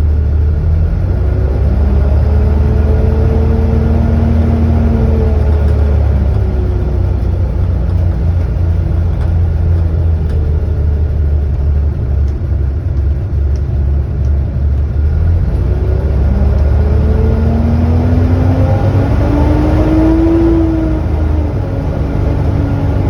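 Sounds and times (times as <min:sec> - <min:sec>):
bus diesel engine rumbling: 0:00.0 - 0:23.0
bus whine: 0:00.0 - 0:23.0.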